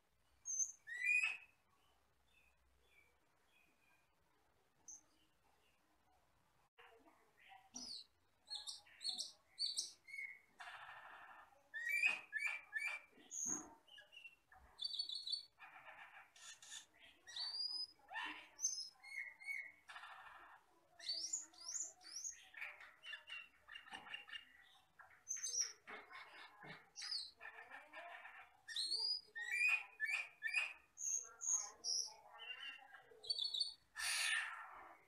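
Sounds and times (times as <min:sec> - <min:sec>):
starling singing chirps and whistles: 0:00.5 - 0:01.5, 0:08.0 - 0:10.4, 0:11.8 - 0:13.1, 0:14.0 - 0:15.5, 0:28.7 - 0:34.5.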